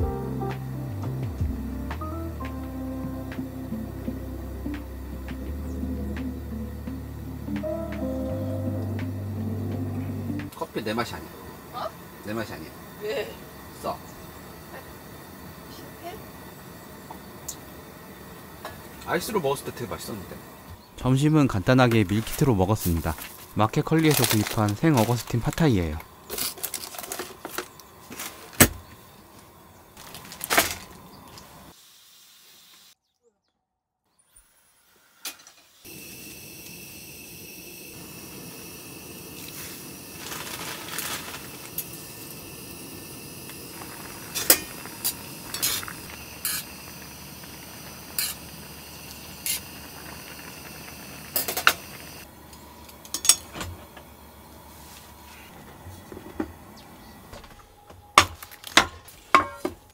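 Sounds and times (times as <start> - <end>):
food frying in a pan: 35.4 - 52.3.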